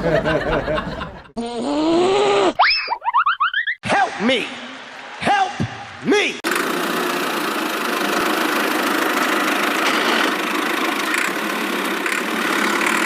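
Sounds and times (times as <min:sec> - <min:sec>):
motor humming: 0:06.5 - 0:13.0.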